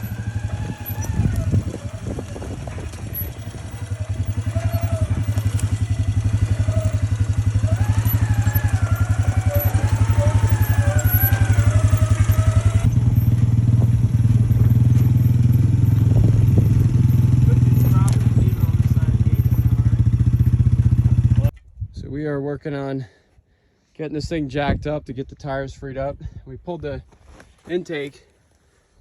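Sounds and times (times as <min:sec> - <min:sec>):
atv engine running: 0:00.0 - 0:21.5.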